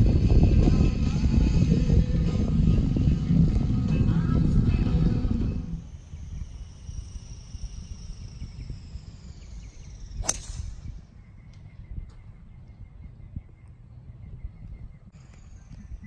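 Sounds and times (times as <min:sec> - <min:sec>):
golf driver striking ball: 0:10.2 - 0:10.9.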